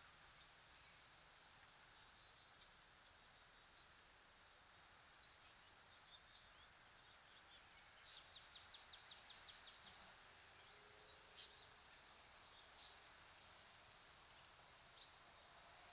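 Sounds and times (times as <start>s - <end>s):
small birds calling: 5.1s - 15.4s.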